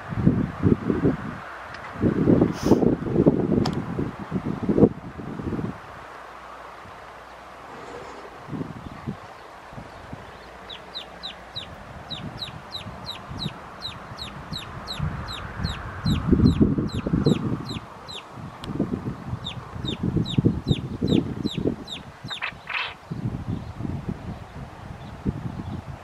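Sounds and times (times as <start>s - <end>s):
bird peeping: 8.8s - 18.3s, 19.3s - 23.7s.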